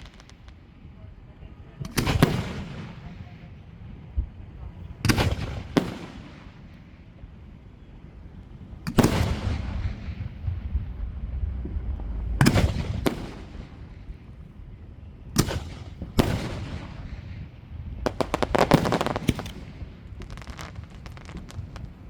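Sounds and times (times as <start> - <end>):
crackling firework reports: 0.0 - 22.0
firework booms: 1.7 - 3.6, 4.2 - 6.7, 8.9 - 14.5, 15.4 - 22.0
low rumble: 9.5 - 14.7.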